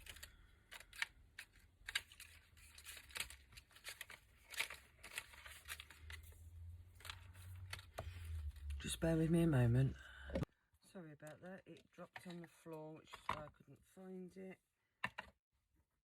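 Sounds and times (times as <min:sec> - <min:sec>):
paper rustling: 0:00.0 - 0:09.0.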